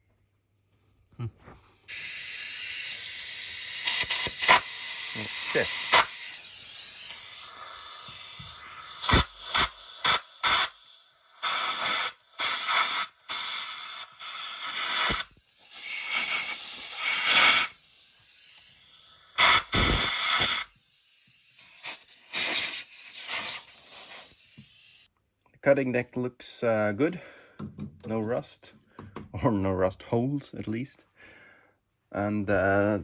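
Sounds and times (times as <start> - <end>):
hissing spray bursts: 1.9 - 25.1.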